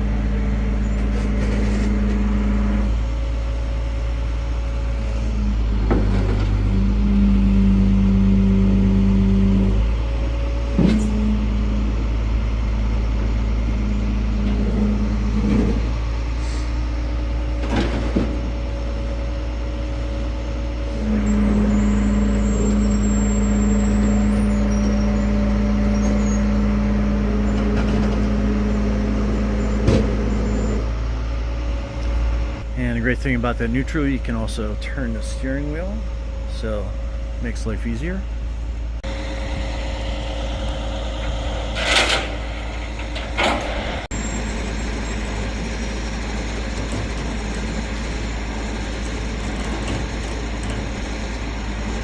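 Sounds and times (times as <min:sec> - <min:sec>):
truck engine rumbling: 0:00.0 - 0:52.0
sharp metal clanks: 0:41.2 - 0:44.1.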